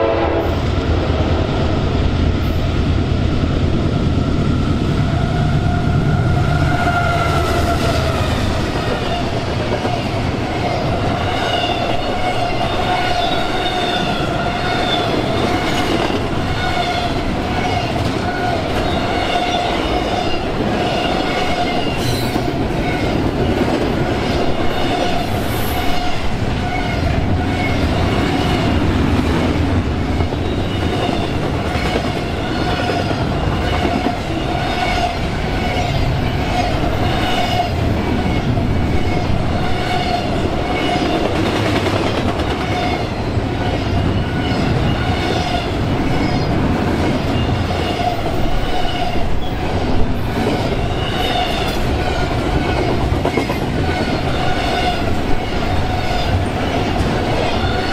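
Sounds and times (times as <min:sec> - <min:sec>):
train rumble: 0:00.0 - 0:57.9.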